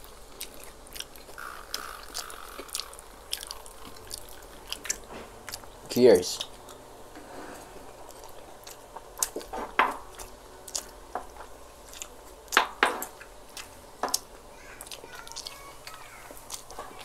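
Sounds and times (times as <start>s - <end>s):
mouth chewing smacks and clicks: 0.0s - 5.7s, 8.1s - 9.5s, 10.1s - 11.0s, 11.8s - 16.8s.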